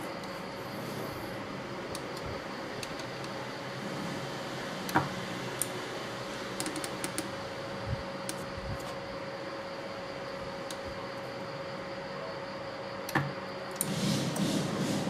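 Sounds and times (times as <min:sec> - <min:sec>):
steady hum: 0:00.0 - 0:15.0
small clicks and taps: 0:06.6 - 0:07.3.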